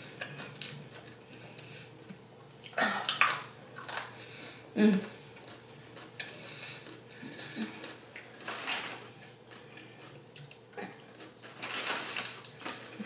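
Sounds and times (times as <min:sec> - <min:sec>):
chewing raw carrot crunches: 0:05.1 - 0:13.0.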